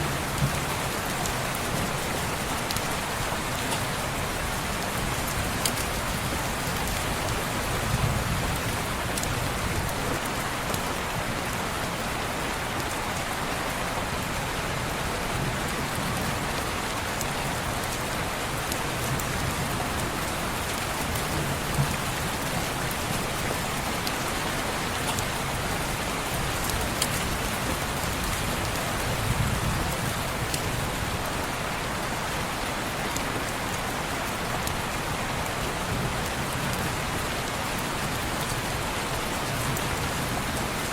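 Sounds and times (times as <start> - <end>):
rain on window glass: 0.1 - 31.5.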